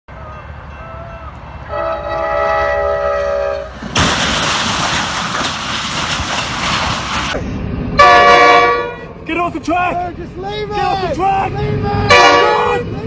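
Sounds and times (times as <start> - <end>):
train rushing and rattling on rails: 0.1 - 13.0
train horn chord: 0.3 - 3.7, 8.0 - 9.1, 12.1 - 13.0.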